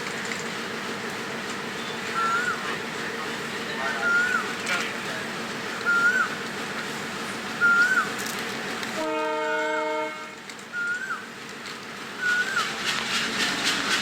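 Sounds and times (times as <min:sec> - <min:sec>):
train running noise: 0:00.0 - 0:14.0
train horn: 0:08.9 - 0:10.5.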